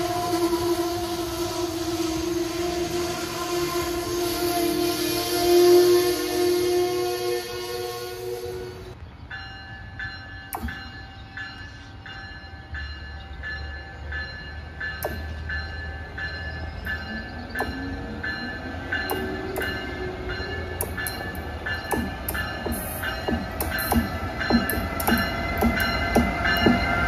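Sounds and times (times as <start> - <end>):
electric locomotive rumble and whine: 0.0 - 27.0
bell ringing: 9.4 - 27.0.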